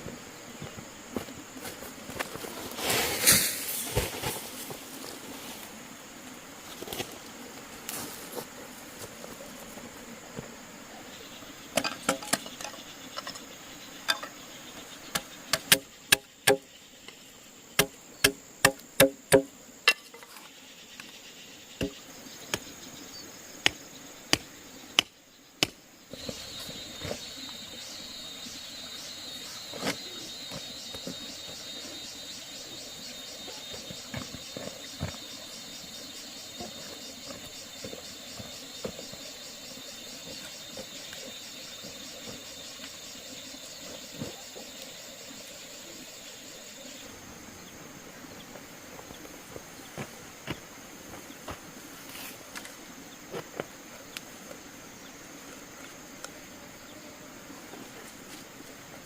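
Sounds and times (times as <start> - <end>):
pulsing insect chirr: 0.0 - 59.0
sharp knocks on wood: 17.8 - 20.0.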